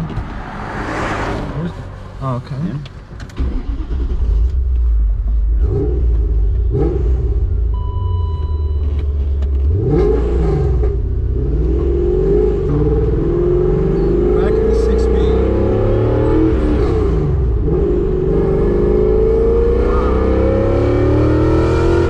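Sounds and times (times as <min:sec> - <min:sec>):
car engine revving: 0:00.0 - 0:07.7, 0:08.8 - 0:22.0
short electronic beep: 0:07.7 - 0:09.0.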